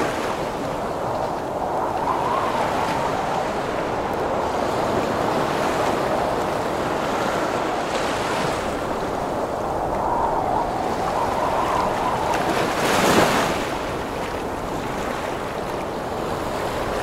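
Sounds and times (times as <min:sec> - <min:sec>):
heavy ocean waves: 0:00.0 - 0:17.0
storm wind blowing: 0:00.0 - 0:17.0.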